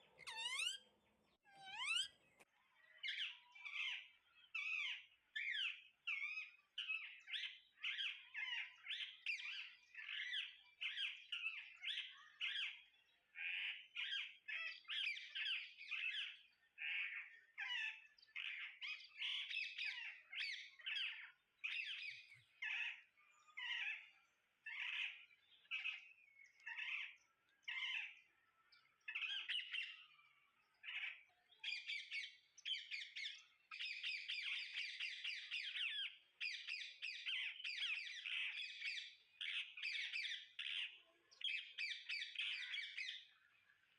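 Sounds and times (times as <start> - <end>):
parrots squawking and chirping: 0.1 - 0.9, 1.5 - 2.2.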